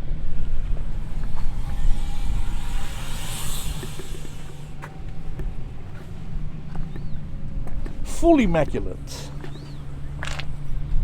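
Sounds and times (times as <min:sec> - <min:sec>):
car driving past: 0:00.0 - 0:06.8
low rumble: 0:00.0 - 0:07.8.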